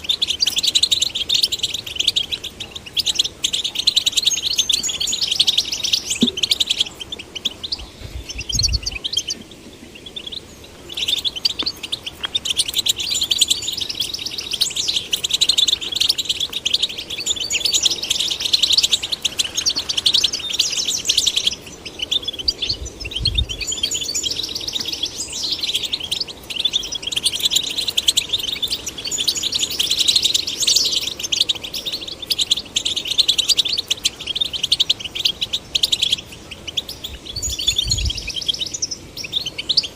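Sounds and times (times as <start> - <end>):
goldfinch singing: 0.0 - 39.9.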